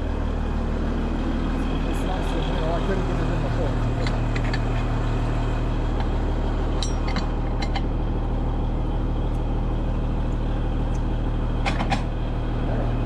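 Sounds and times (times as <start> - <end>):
tractor diesel engine droning: 0.0 - 13.0
light clinks and rattles: 3.8 - 4.9, 6.7 - 7.8.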